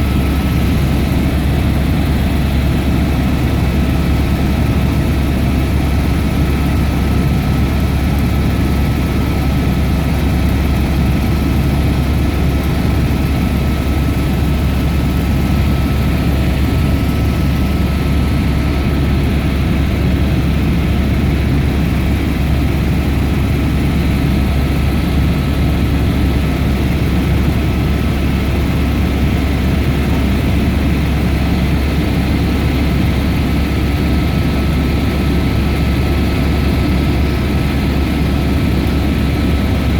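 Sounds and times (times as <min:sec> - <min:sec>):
helicopter drone with whine: 0:00.0 - 0:39.9.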